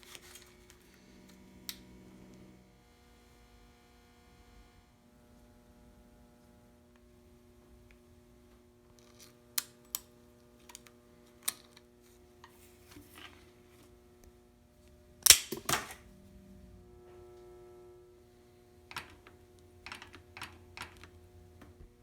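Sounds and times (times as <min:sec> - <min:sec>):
faint steady hum: 0:00.0 - 0:22.0
tools clicking and tapping: 0:15.2 - 0:16.0, 0:18.9 - 0:21.2.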